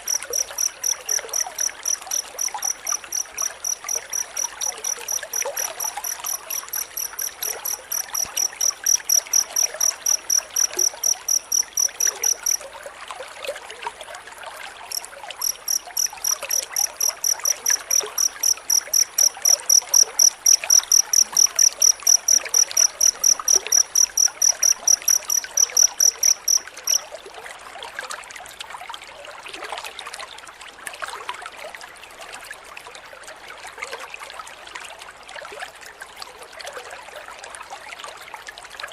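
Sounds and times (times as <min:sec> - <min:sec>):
field cricket chirping: 0:00.0 - 0:12.7, 0:14.9 - 0:27.0
water trickling: 0:00.0 - 0:33.1.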